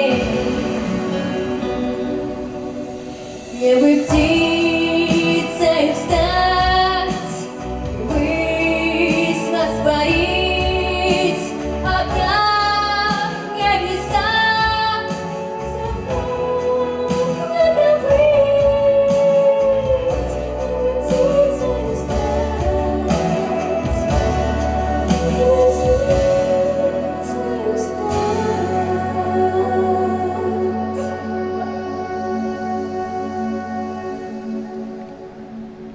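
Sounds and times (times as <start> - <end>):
woman singing long wavering notes: 0.0 - 35.6
backing track with steady beat: 0.0 - 35.9.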